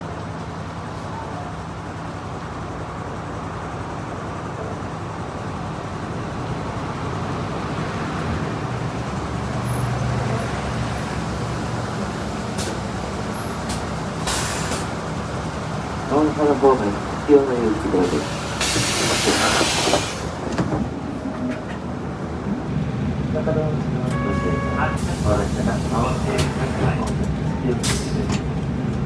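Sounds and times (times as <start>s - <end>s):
bus diesel engine idling: 0.0s - 29.0s.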